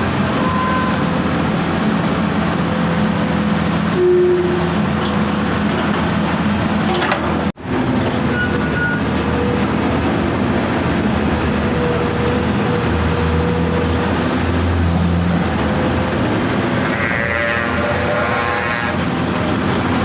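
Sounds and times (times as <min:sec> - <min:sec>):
excavator diesel engine running: 0:00.0 - 0:20.0
high squeal: 0:00.4 - 0:01.2.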